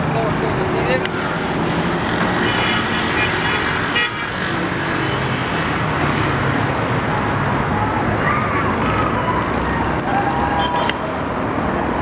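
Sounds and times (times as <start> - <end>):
road traffic noise: 0.0 - 12.0
car horn: 2.4 - 5.4.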